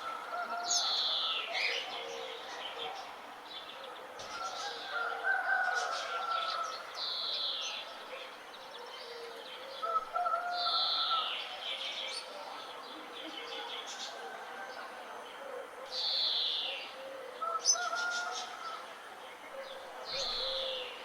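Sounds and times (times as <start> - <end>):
birds chirping and calling: 15.9 - 21.0.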